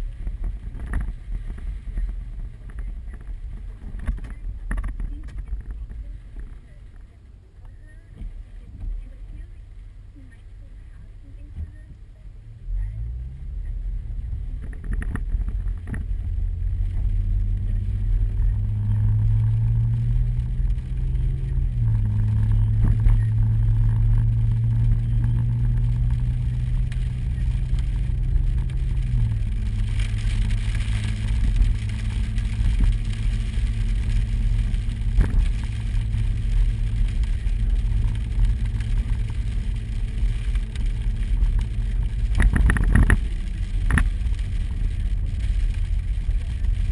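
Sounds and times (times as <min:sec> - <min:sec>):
vehicle engine from inside cab: 0:00.0 - 0:46.9.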